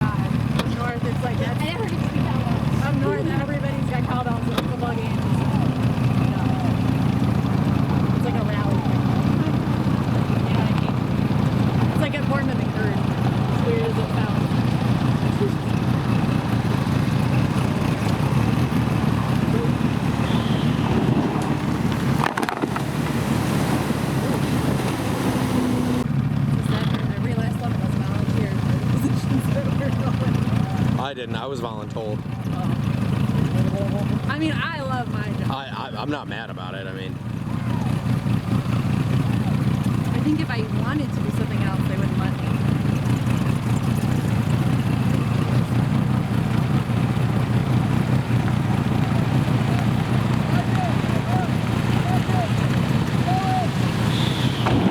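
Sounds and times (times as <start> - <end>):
wind buffeting microphone: 0.0 - 26.0, 39.4 - 54.9
water rushing past hull: 0.0 - 26.1, 37.3 - 54.9
motorboat engine running: 0.0 - 54.9
clatter of knocks: 21.3 - 22.9.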